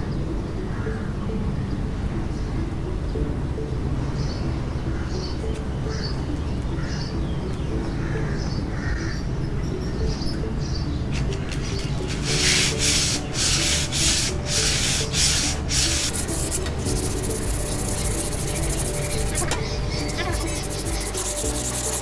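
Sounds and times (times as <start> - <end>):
abrasive rubbing on steel blade: 11.7 - 22.0.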